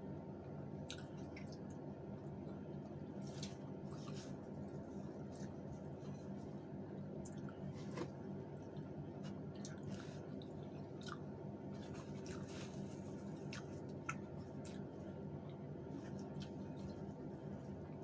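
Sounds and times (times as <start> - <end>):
steady low hum: 0.0 - 18.0
mouth clicks and smacks chewing: 0.9 - 1.8, 9.6 - 11.3.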